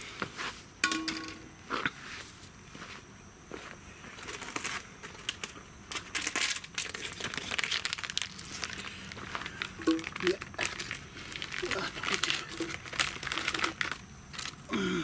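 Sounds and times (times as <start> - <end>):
packaging crinkling: 4.3 - 14.7.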